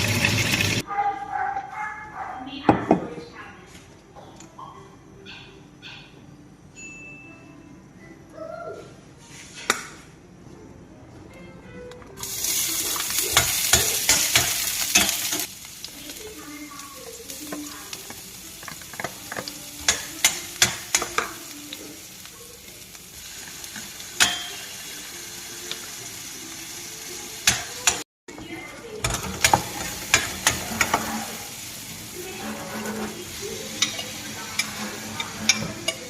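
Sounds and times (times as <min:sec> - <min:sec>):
food sizzling in hot oil: 0:00.0 - 0:00.8, 0:12.2 - 0:36.0
spatula clacking against pan: 0:18.6 - 0:21.4, 0:29.0 - 0:31.1, 0:33.7 - 0:36.0.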